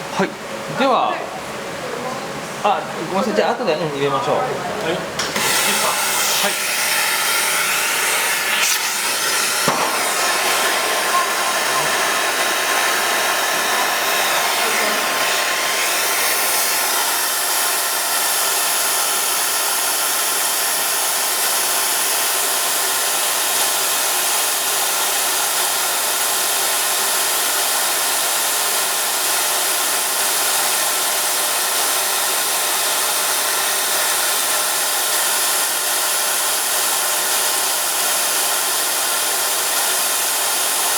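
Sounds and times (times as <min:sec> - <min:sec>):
abrasive brush grinding on lathe: 0:05.4 - 0:18.4.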